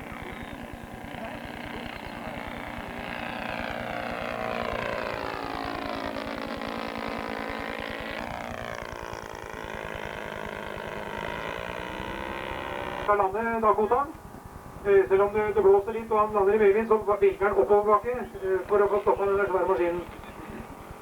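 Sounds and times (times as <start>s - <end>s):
model airplane engines flying by: 0.0s - 21.0s.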